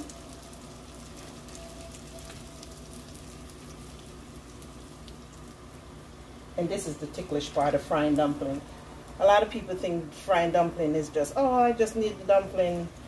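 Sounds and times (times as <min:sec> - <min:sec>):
dumplings sizzling in hot oil: 0:00.0 - 0:09.3.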